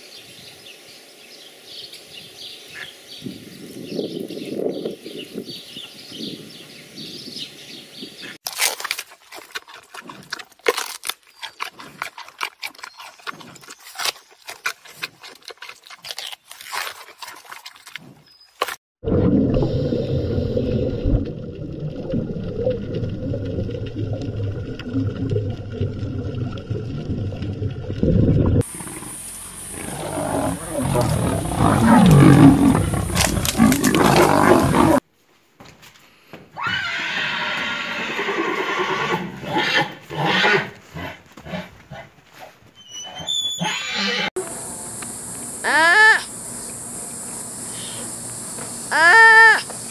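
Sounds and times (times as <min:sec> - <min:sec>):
panda chewing bamboo: 0:08.5 - 0:18.8
lions growling: 0:28.6 - 0:35.0
horse whinnying: 0:36.6 - 0:40.7, 0:42.8 - 0:44.3.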